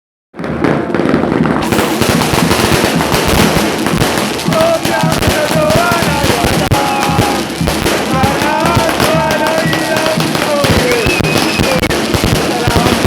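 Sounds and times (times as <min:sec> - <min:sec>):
firecrackers crackling: 0:00.4 - 0:13.0
crowd singing a football chant: 0:04.4 - 0:13.0.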